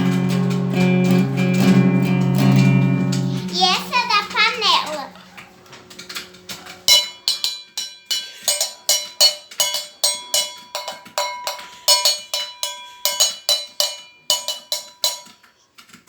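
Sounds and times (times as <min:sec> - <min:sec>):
metal object struck ringing: 0:06.9 - 0:15.3.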